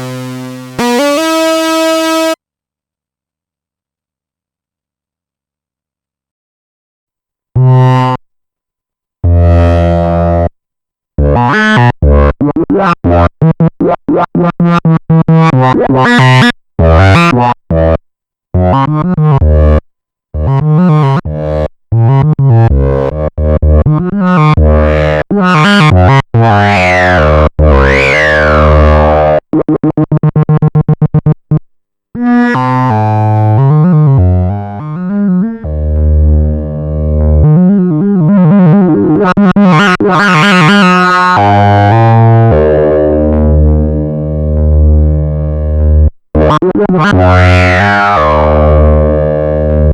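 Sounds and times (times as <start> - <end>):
analog synthesizer notes: 0.0 - 2.4, 20.4 - 49.9.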